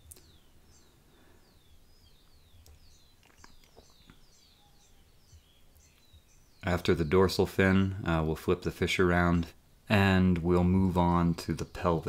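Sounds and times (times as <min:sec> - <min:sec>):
bird chirps: 0:00.0 - 0:12.0
soft clicks: 0:02.6 - 0:04.2.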